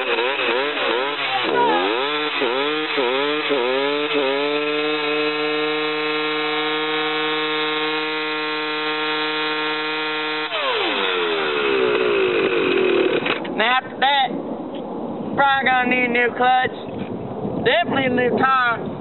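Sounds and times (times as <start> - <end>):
dirt bike engine revving: 0.0 - 13.5.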